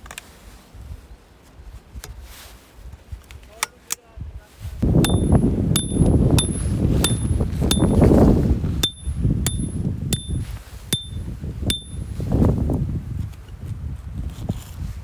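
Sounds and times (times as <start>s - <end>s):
wind rumble on microphone: 0.0s - 3.5s, 4.1s - 15.0s
sharp metallic strikes ringing: 5.0s - 8.0s, 8.8s - 10.4s, 11.0s - 12.0s.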